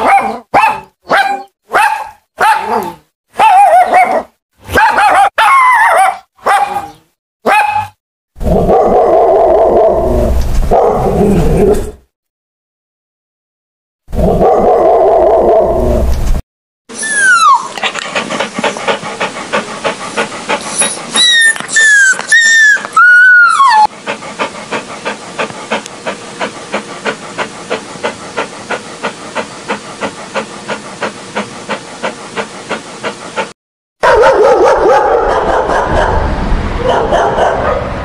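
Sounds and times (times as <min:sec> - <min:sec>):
dog whining and whimpering: 0:16.9 - 0:18.0, 0:20.6 - 0:23.9.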